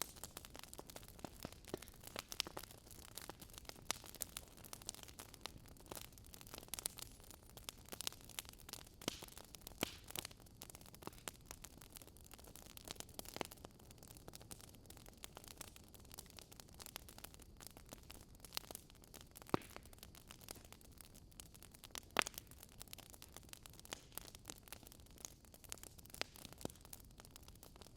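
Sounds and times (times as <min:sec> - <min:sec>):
wood fire crackling: 0:00.0 - 0:27.9.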